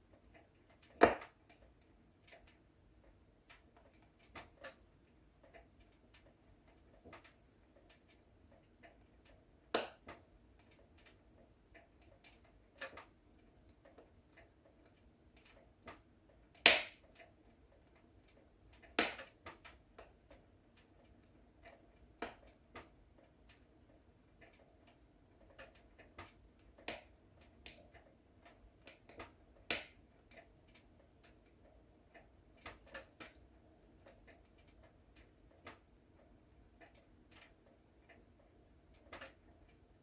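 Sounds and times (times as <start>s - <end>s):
wood fire crackling: 0.0s - 40.0s
fire pops and snaps: 9.7s - 11.2s, 16.6s - 17.0s, 19.0s - 20.1s, 28.8s - 30.0s.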